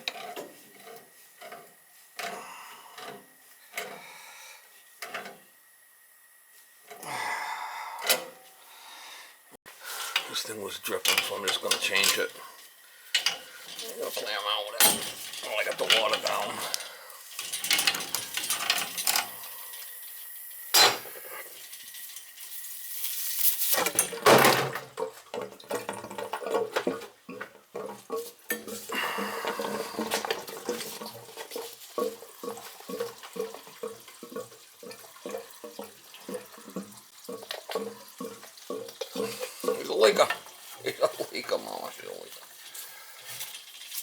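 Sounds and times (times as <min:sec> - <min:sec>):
metal tools clanking and scraping: 0:00.0 - 0:02.4, 0:10.2 - 0:12.5, 0:13.1 - 0:19.5, 0:20.8 - 0:21.4
water dribbling: 0:24.8 - 0:43.2.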